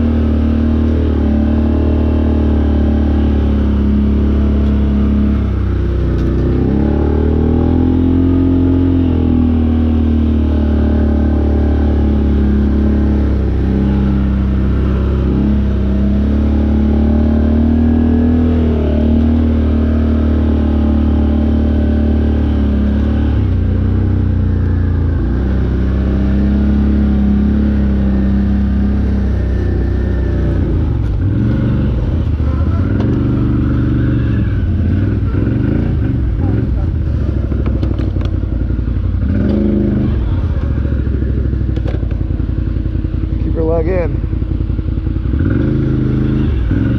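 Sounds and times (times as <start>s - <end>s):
off-road vehicle engine revving: 0.0s - 46.9s.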